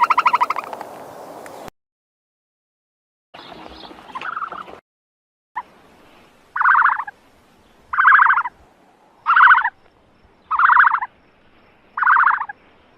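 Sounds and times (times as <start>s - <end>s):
pulsed animal call: 9.2s - 9.7s, 10.5s - 11.1s, 12.0s - 12.5s.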